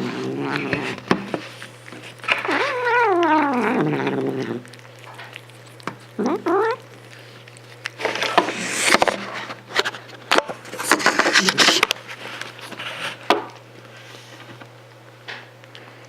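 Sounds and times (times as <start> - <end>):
crackly clicking noise: 0.6 - 12.8, 14.4 - 16.0
cat meowing: 2.4 - 5.4, 6.1 - 6.9.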